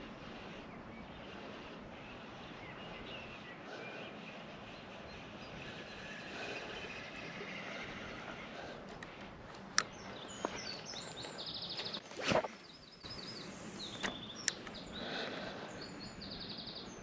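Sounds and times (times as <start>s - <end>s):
small birds chirping: 0.0s - 17.0s
steady outdoor hiss: 0.0s - 17.0s
sharp clicks: 8.8s - 12.5s, 13.7s - 14.9s.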